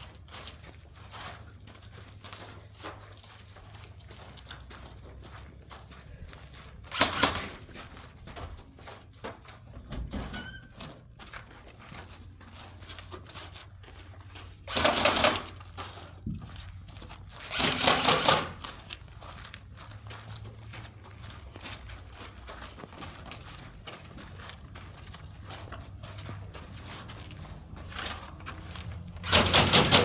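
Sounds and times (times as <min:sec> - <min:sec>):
airsoft rifle rapid shots: 0:06.9 - 0:07.6, 0:14.7 - 0:15.5, 0:17.5 - 0:18.6, 0:29.2 - 0:30.0.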